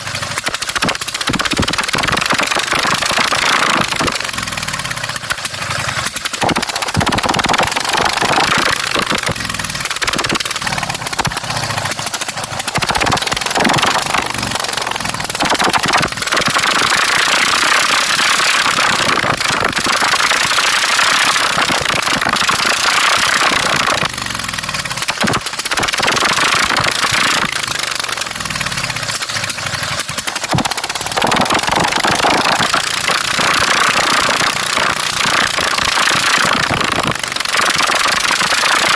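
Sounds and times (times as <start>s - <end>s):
loud lawn mower engine revving: 0.0s - 38.9s.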